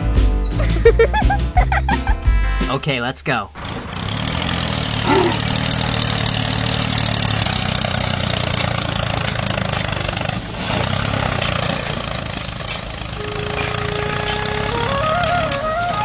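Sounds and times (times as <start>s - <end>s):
small tractor motor running: 3.6s - 16.0s.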